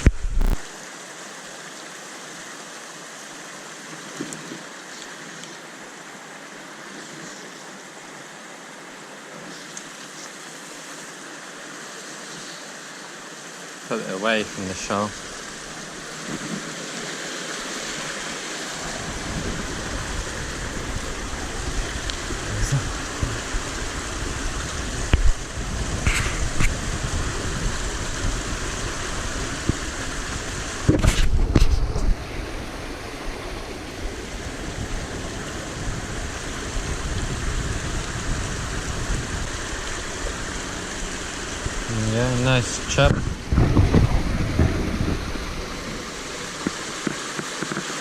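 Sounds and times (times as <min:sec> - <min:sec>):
flowing river water: 0:00.0 - 0:48.0
wind buffeting microphone: 0:17.9 - 0:47.2.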